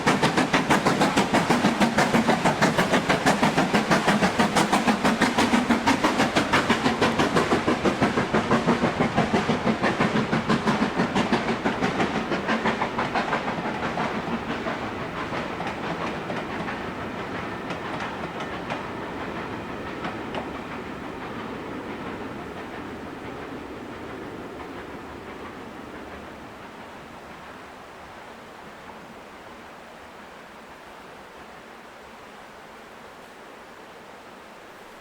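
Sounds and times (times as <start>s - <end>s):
steam locomotive exhaust beats: 0.0s - 32.2s
train rumbling: 0.0s - 35.0s.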